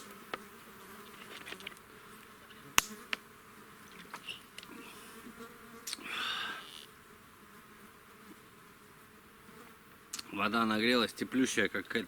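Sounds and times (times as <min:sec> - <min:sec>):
flies buzzing: 0:00.0 - 0:11.5
sharp click: 0:02.8 - 0:03.2.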